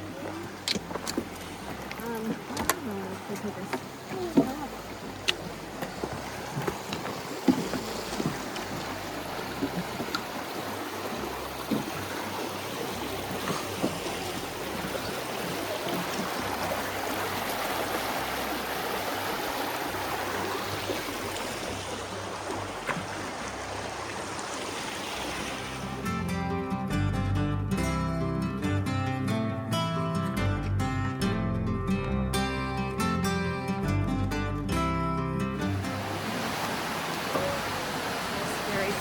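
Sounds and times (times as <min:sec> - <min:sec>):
brook running over rocks: 0:00.0 - 0:26.2, 0:35.6 - 0:39.0.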